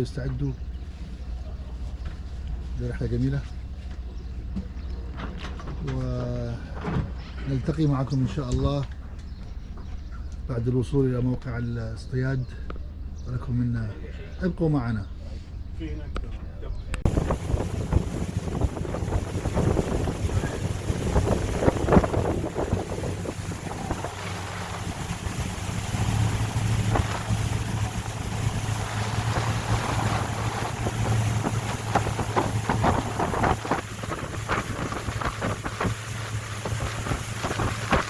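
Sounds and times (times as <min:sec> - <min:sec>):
wind buffeting microphone: 0:17.0 - 0:38.0
motorboat engine running: 0:17.1 - 0:38.0.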